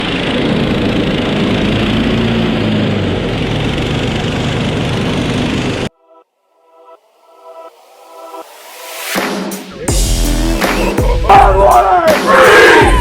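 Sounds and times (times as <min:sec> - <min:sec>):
small engine running: 0:00.0 - 0:05.9.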